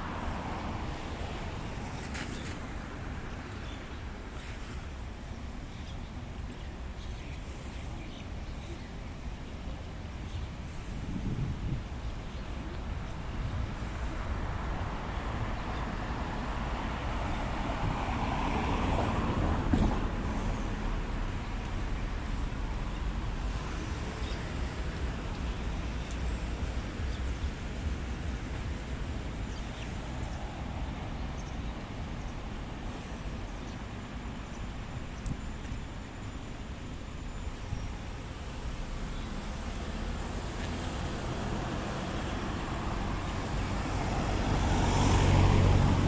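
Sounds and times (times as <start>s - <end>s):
road traffic rumble: 0.0s - 46.0s
vehicle passing: 39.3s - 46.0s.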